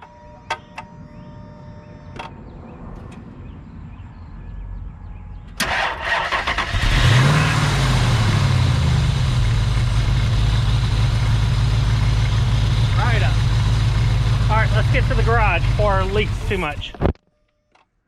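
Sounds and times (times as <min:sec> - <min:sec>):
car engine revving and idling: 0:06.3 - 0:17.0.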